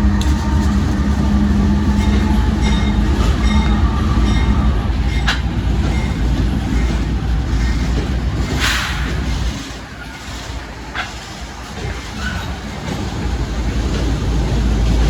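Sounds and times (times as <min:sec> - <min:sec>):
freight train rumbling past: 0:00.0 - 0:15.0
light clicks of train wheels: 0:04.4 - 0:15.0.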